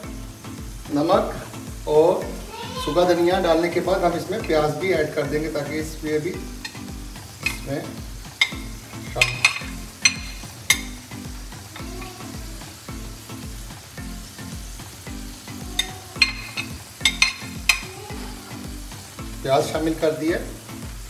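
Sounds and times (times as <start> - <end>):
food sizzling on a pan: 0.0 - 21.0
spatula scraping a pan: 15.8 - 18.3.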